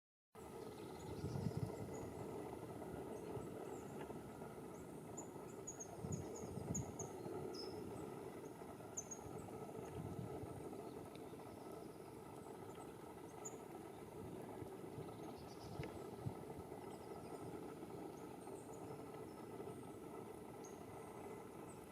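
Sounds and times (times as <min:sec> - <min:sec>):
bird chirping: 0:04.7 - 0:09.6, 0:15.0 - 0:16.2.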